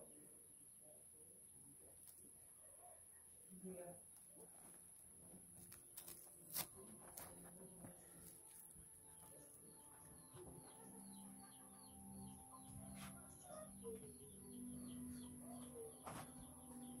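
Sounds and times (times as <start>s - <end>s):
faint bird chirps: 7.6s - 17.0s.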